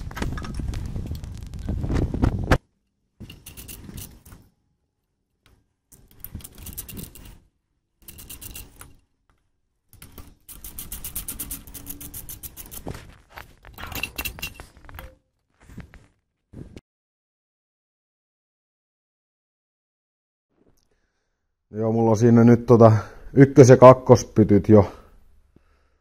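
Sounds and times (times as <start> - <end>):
hand tools clicking on metal: 3.2 - 4.4, 5.9 - 7.4, 8.0 - 9.0, 9.9 - 13.0, 13.6 - 15.2.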